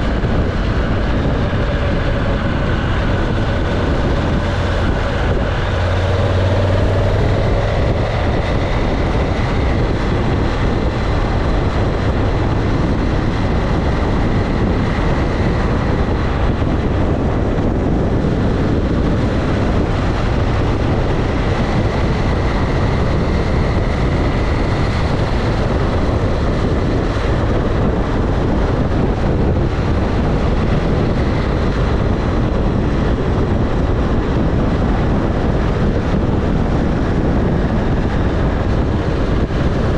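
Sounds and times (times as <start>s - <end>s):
faint engine hum: 0.0s - 39.9s
motorcycle rushing noise: 0.0s - 39.9s.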